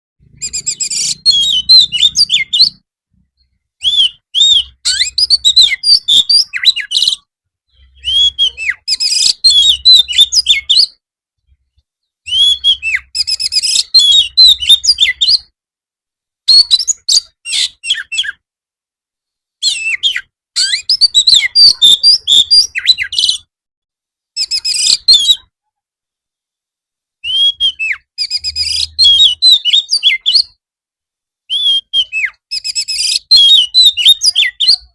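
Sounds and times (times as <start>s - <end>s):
bird singing whistles and chattering: 0.2s - 2.8s, 3.8s - 11.0s, 12.2s - 15.5s, 16.5s - 18.4s, 19.6s - 23.5s, 24.4s - 25.5s, 27.2s - 30.6s, 31.5s - 34.9s.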